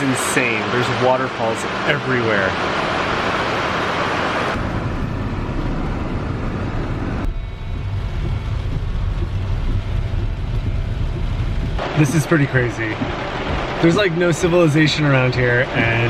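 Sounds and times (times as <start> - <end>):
heavy rain and falling water: 0.0 - 4.6, 11.2 - 16.0
wind buffeting microphone: 4.6 - 14.7.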